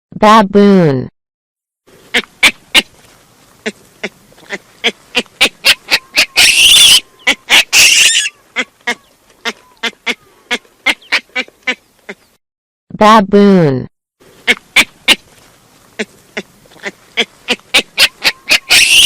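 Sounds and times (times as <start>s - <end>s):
baboon grunting barks: 3.6s - 12.3s, 16.0s - 19.0s
baboon screaming: 3.6s - 12.3s, 16.8s - 19.0s.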